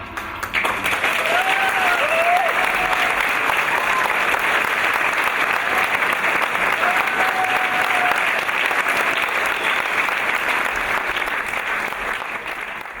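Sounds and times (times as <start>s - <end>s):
audience applauding: 0.0s - 13.0s
held cry: 1.0s - 4.3s, 6.7s - 8.4s.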